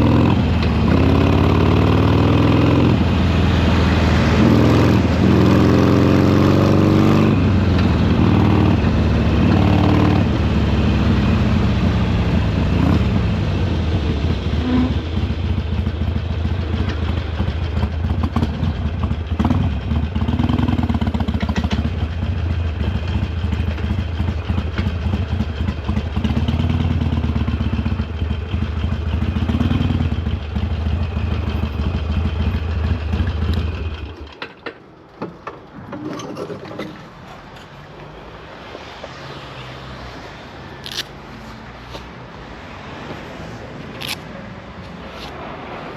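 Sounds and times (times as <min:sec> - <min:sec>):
motorcycle engine running: 0:00.0 - 0:34.2.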